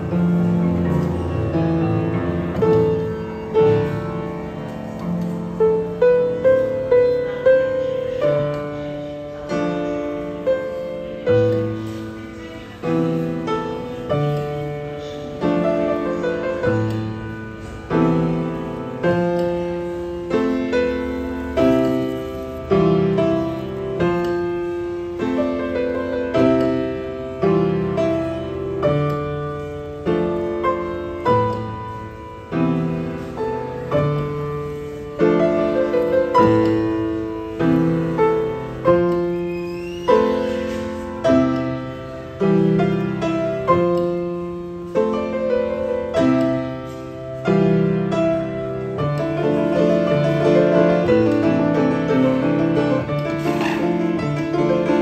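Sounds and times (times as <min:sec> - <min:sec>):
piano chords: 0:00.0 - 0:55.0.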